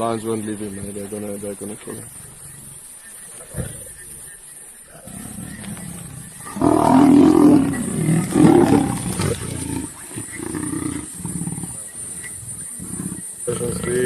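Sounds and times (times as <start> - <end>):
big cats fighting and calling: 0.0 - 14.0.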